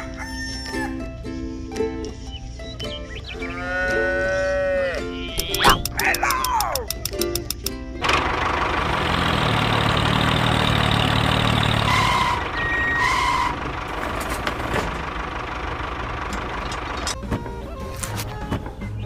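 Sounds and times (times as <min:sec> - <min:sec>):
tractor engine running: 0:05.4 - 0:19.0.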